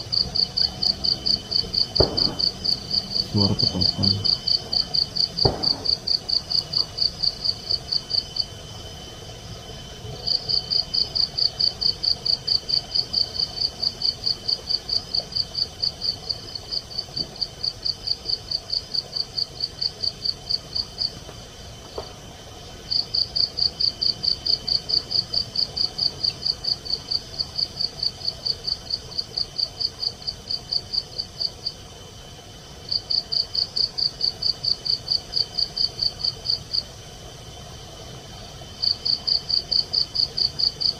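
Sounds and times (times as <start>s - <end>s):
night insect chirping: 0.0s - 40.9s
faint high-pitched drone: 2.2s - 4.4s.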